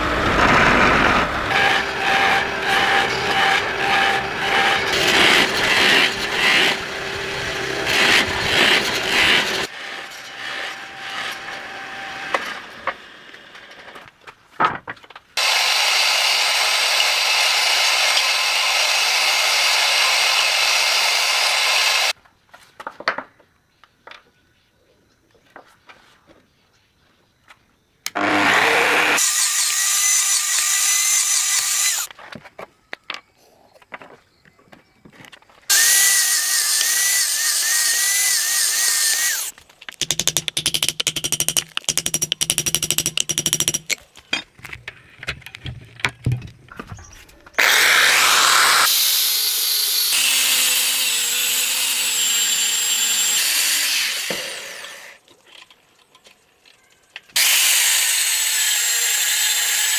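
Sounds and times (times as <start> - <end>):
power grinder on steel blade: 0.0 - 13.6, 15.4 - 22.2, 28.2 - 32.1, 35.7 - 39.5, 47.6 - 55.2, 57.4 - 59.9.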